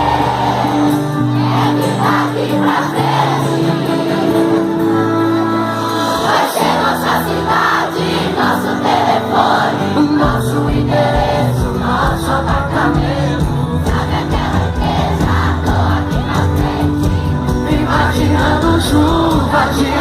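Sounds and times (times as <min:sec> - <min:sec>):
crowd singing along: 0:00.0 - 0:20.0
live band music: 0:00.0 - 0:20.0
steady drum beat: 0:10.2 - 0:20.0.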